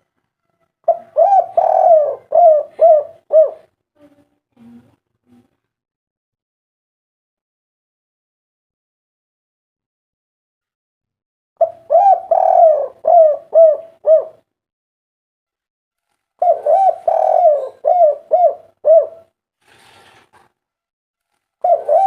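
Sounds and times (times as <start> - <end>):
dove cooing: 0.8 - 4.2, 11.6 - 14.5, 16.4 - 19.4, 21.6 - 22.0.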